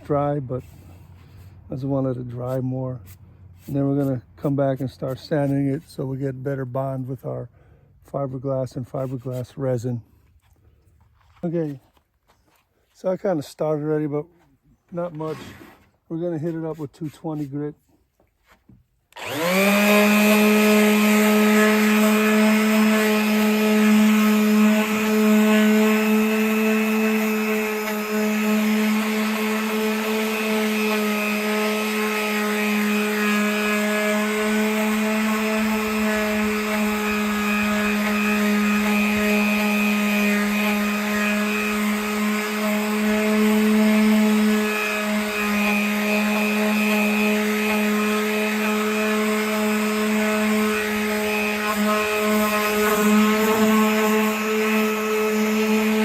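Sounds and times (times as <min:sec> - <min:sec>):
sandpaper rubbing on wood: 0:00.5 - 0:06.1, 0:08.9 - 0:09.6, 0:15.1 - 0:17.8, 0:19.5 - 0:56.0
power sander motor whine: 0:19.1 - 0:56.0.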